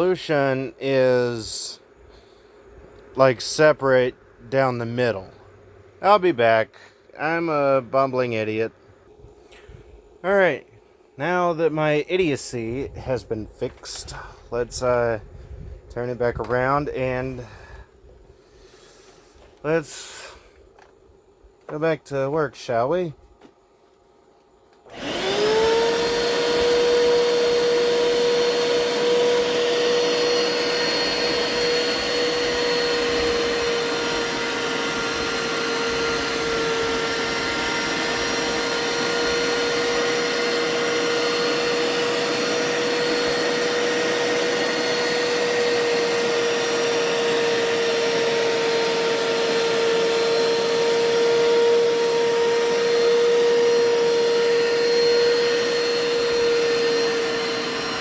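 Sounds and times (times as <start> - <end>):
carpet cleaner motor whirring: 24.8 - 58.0.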